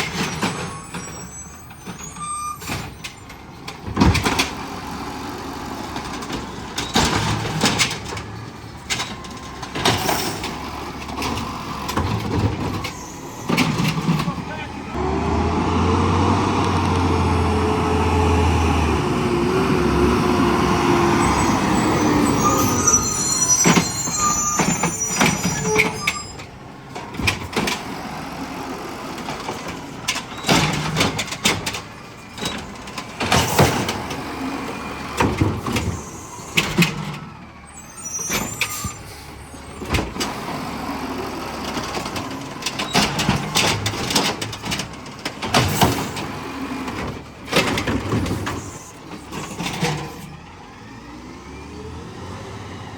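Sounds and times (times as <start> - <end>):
brake squeal: 0.0 - 3.8, 5.6 - 28.0, 29.2 - 52.9
garbage truck engine running: 0.0 - 52.9.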